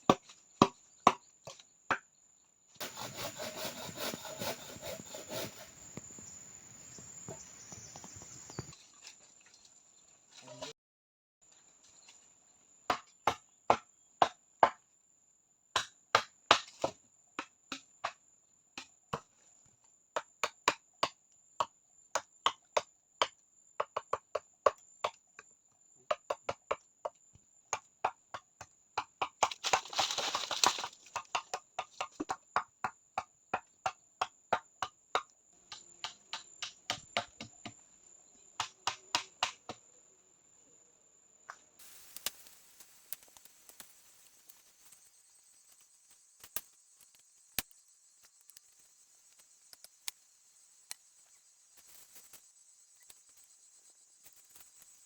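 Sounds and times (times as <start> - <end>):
rasping scrape: 2.8 - 6.2.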